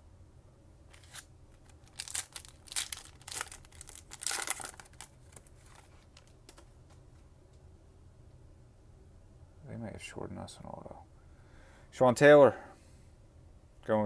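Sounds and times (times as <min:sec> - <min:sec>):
foil wrapper tearing and crinkling: 0:00.9 - 0:06.3.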